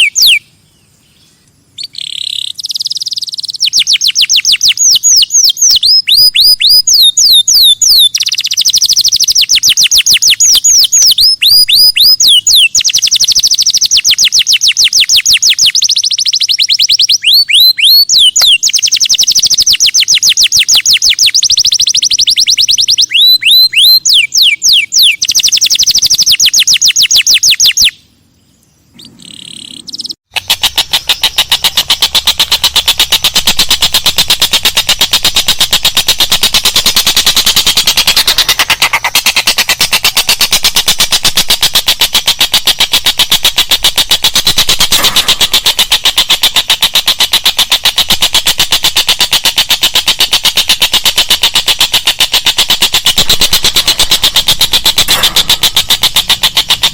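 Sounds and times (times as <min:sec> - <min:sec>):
songbird trills and whistles: 0:00.0 - 0:56.9
fast pulsing sound: 0:30.3 - 0:56.9.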